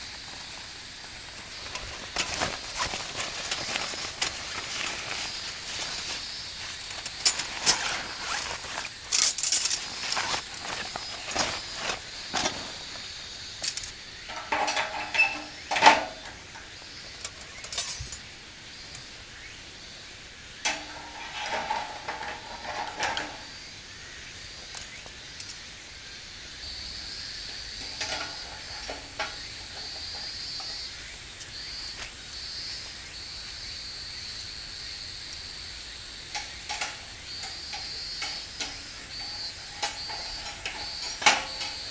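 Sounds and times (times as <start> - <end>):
steady high hiss: 0.0 - 41.9
ringing metal clinks: 17.3 - 18.3.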